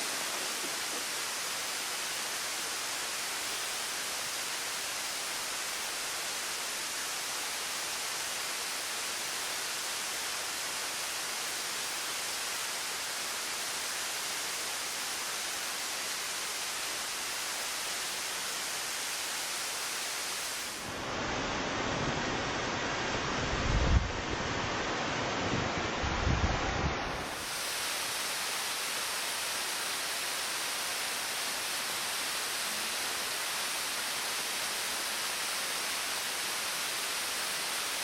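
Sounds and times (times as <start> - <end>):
waterfall rushing: 0.0 - 38.0
wind buffeting microphone: 25.4 - 27.2.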